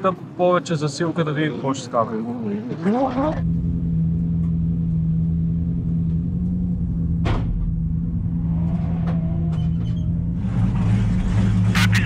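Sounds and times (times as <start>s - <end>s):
car engine droning: 3.0s - 12.0s.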